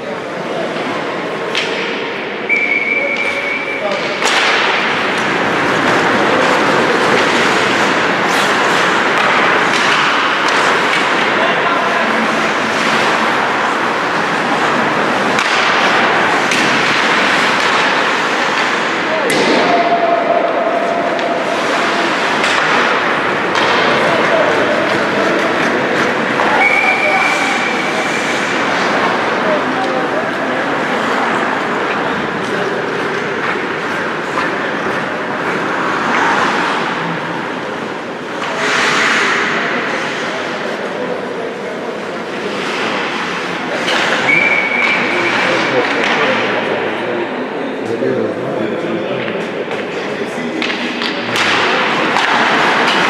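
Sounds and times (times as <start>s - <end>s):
stick hitting puck: 1.5s - 20.1s, 21.0s - 29.0s, 43.7s - 46.6s, 49.2s - 53.0s
skate blades scraping ice: 4.2s - 19.1s, 21.3s - 41.1s, 41.9s - 46.1s.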